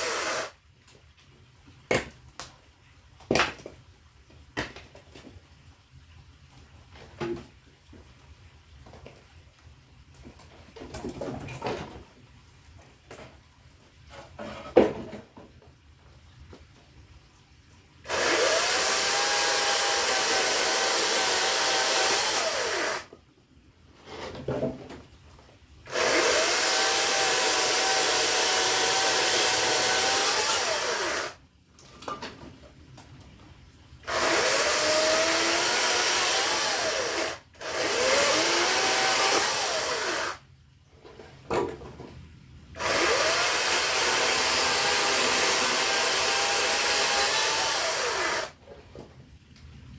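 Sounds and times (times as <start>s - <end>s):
electric saw cutting firewood: 0.0s - 0.6s, 18.1s - 23.2s, 25.9s - 31.4s, 34.0s - 40.4s, 42.8s - 48.6s.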